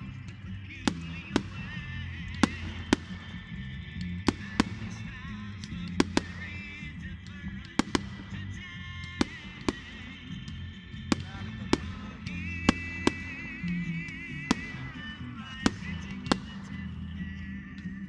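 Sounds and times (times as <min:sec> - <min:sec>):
fireworks cracking: 0:00.0 - 0:18.0
music with bass line: 0:00.0 - 0:18.0.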